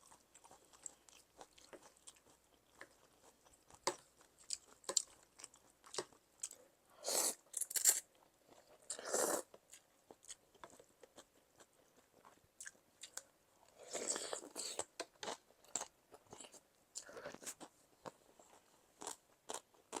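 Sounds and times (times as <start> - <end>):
wet chewing and mouth clicks: 0.0 - 6.6.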